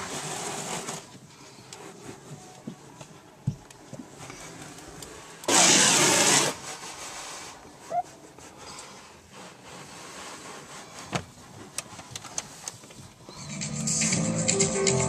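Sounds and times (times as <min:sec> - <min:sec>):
hose spraying water: 0:05.5 - 0:07.5.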